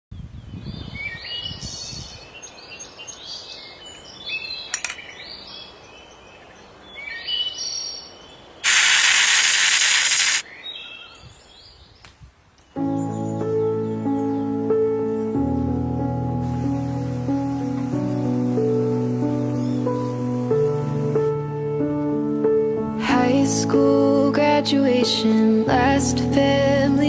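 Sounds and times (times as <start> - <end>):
loud even hiss: 8.6 - 10.4, 16.4 - 21.4
birds chirping: 16.5 - 21.2.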